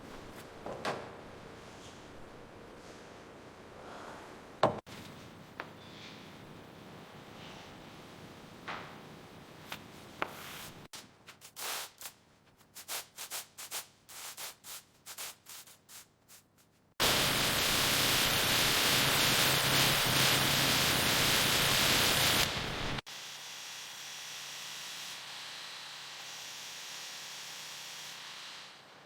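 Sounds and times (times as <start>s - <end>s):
rubbing strokes on a surface: 10.2s - 17.0s
spraying hiss: 11.4s - 12.2s, 12.8s - 16.1s, 17.0s - 23.0s.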